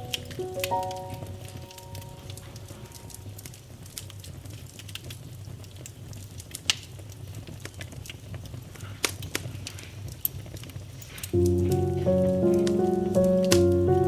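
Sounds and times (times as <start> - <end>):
wood fire crackling: 0.0 - 14.0
fire pops and snaps: 3.3 - 11.4.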